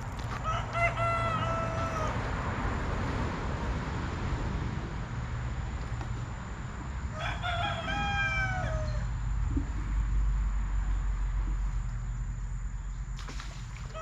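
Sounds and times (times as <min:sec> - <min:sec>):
rooster crowing: 0:00.3 - 0:02.3, 0:07.1 - 0:09.1.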